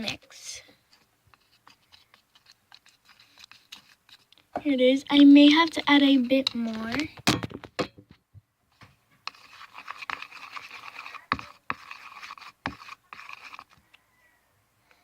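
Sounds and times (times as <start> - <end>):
slime scraping and squishing: 0.0 - 7.2, 9.3 - 13.9.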